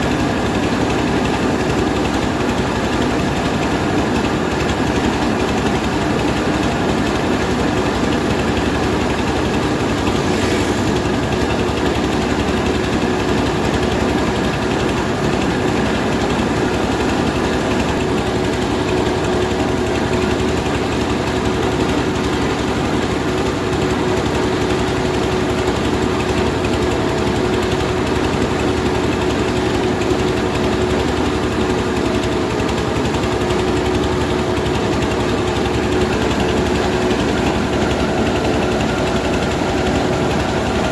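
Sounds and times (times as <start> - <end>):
milling machine humming: 8.3 - 13.0.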